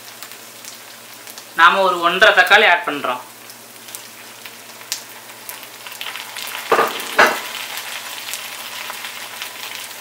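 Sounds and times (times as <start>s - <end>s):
vegetables sizzling in a wok: 0.0s - 10.0s
tomatoes thumping into wok: 6.7s - 7.6s.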